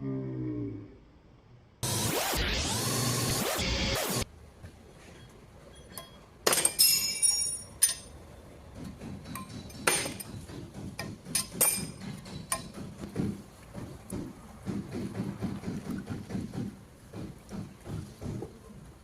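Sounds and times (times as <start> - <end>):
metal tools clinking: 5.2 - 8.2.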